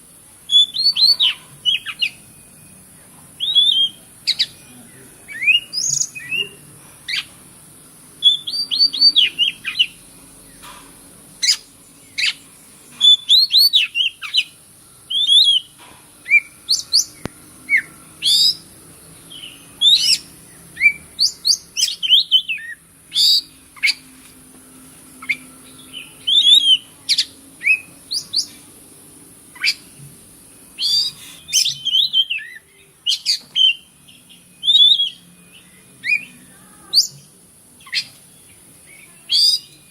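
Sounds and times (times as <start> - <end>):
steady high hiss: 0.0 - 39.9
bird singing chirps and whistles: 0.5 - 2.7, 3.4 - 4.6, 5.3 - 7.3, 8.2 - 10.0, 11.4 - 12.4, 13.0 - 18.7, 19.3 - 24.0, 25.2 - 28.6, 29.6 - 30.0, 30.8 - 38.2, 38.9 - 39.9.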